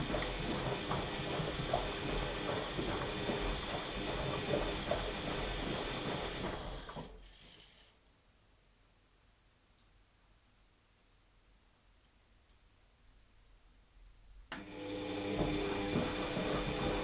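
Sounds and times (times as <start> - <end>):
water and laundry sloshing: 0.0 - 7.2, 14.9 - 17.0
washing machine motor hum: 0.0 - 7.5, 14.6 - 17.0.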